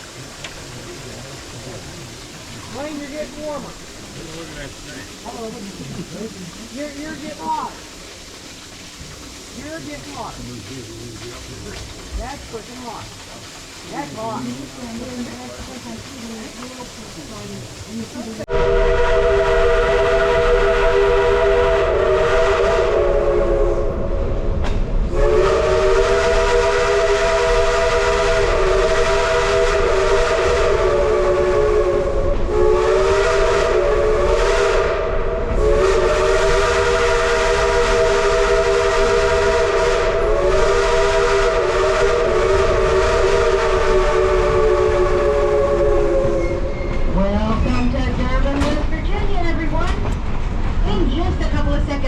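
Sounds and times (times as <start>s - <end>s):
steam hissing: 0.0s - 52.0s
steam locomotive chime whistle: 18.5s - 24.4s, 25.1s - 47.9s.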